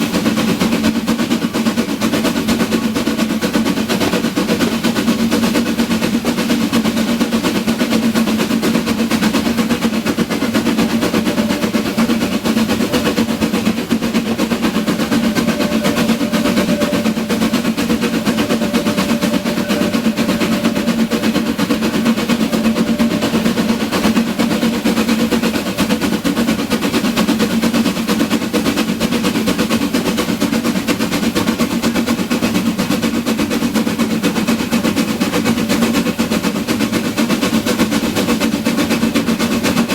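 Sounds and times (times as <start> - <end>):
steam train rattling: 0.0 - 39.9.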